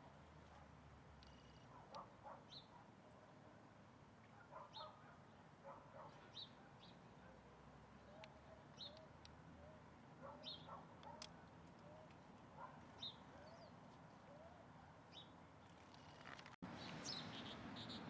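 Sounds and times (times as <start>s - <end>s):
faint bird chirps: 1.2s - 1.9s, 16.8s - 18.0s.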